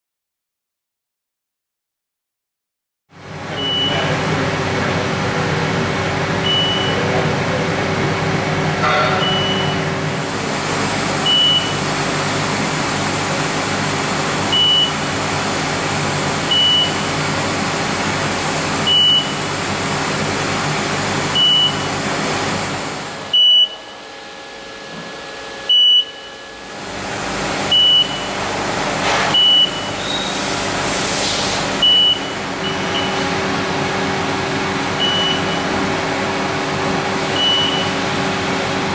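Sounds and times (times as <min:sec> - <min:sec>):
short high beeps: 0:03.6 - 0:04.0, 0:06.5 - 0:07.0, 0:09.2 - 0:09.8.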